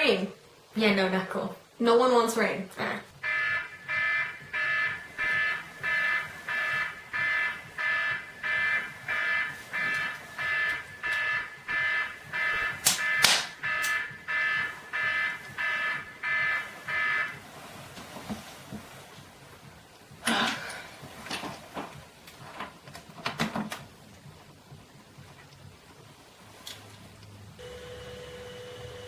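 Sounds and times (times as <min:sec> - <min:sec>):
electronic alarm clock beeping: 0:03.2 - 0:17.3.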